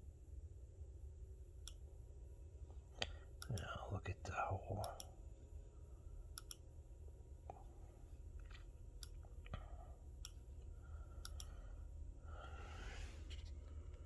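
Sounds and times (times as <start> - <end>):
low steady hum: 0.0 - 14.0
computer mouse clicks: 6.3 - 6.6, 10.2 - 10.4, 11.2 - 11.6.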